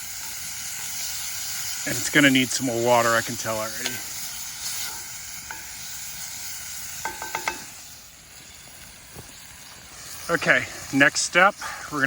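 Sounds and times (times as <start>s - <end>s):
meat sizzling in a pan: 0.0s - 12.0s
utensil clinking against pan: 7.0s - 7.7s.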